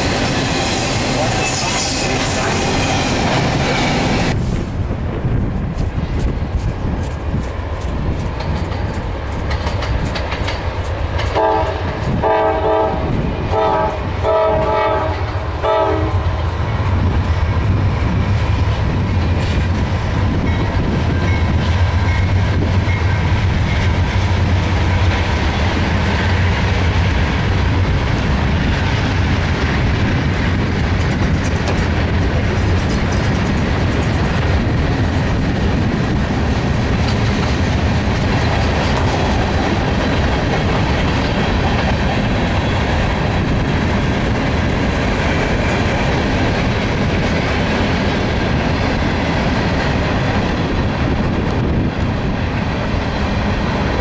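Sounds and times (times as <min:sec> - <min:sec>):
freight cars rumbling and clacking: 0:00.0 - 0:12.3, 0:16.2 - 0:54.0
locomotive air horn blasts: 0:11.4 - 0:16.3.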